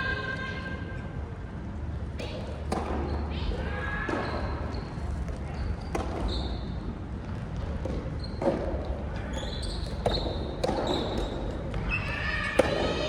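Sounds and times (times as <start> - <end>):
shoe squeaks: 4.2 - 6.8, 8.1 - 8.5, 9.2 - 12.4.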